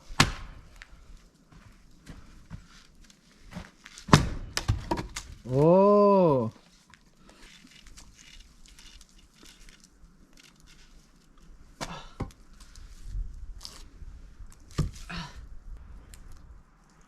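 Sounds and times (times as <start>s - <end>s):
axe striking log: 0.1s - 0.6s, 4.0s - 5.4s.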